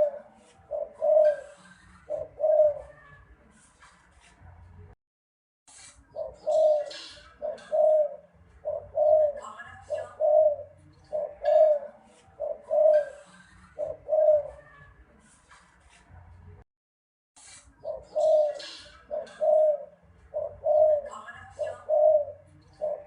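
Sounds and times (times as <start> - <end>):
dove cooing: 0.0 - 3.0, 6.2 - 14.7, 17.8 - 23.0.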